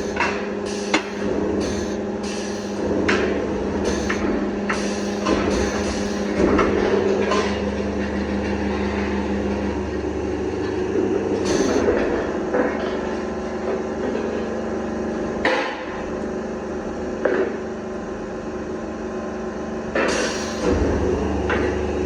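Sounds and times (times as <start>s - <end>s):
sharp metal knocks: 0.0s - 7.6s
steady machine hum: 0.0s - 22.0s.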